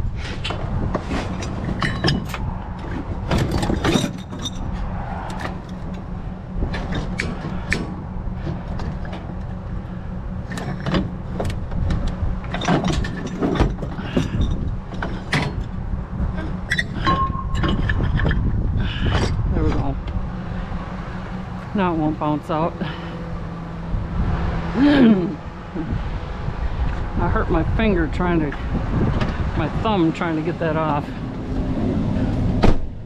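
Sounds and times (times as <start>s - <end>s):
steady low rumble: 0.0s - 33.0s
scrap metal clanking: 0.2s - 21.4s.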